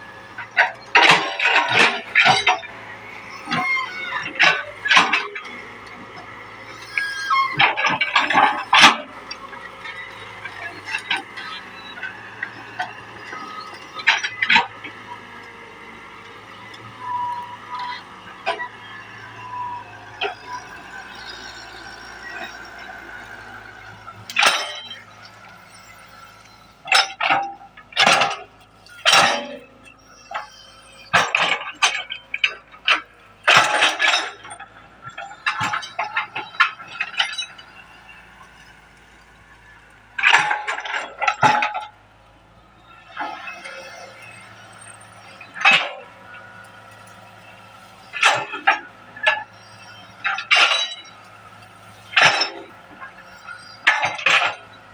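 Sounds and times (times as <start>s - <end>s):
excavator engine running: 0.0s - 54.9s
high-pitched squeals: 0.1s - 27.3s
metal clanks: 0.2s - 19.4s, 20.0s - 39.2s, 39.9s - 42.0s, 43.1s - 54.8s.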